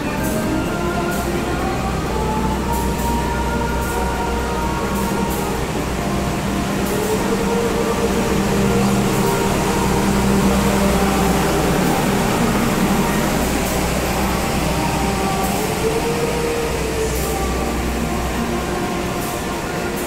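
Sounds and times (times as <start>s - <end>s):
low hum: 0.0s - 20.0s
train carriages rumbling past: 0.0s - 20.0s.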